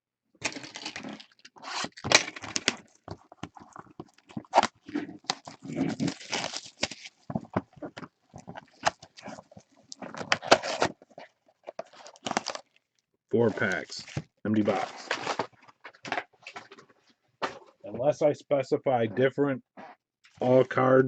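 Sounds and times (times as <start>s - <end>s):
card packs rustling and knocking: 0.4s - 9.0s, 10.0s - 12.6s, 13.4s - 17.7s
cardboard box being opened: 4.4s - 7.8s.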